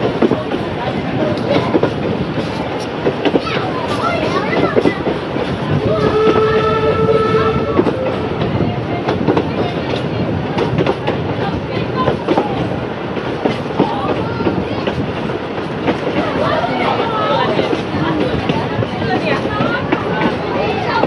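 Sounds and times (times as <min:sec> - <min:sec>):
train rumbling: 0:00.0 - 0:21.0
wheels clicking over rail joints: 0:00.0 - 0:21.0
locomotive whistle: 0:06.0 - 0:08.4.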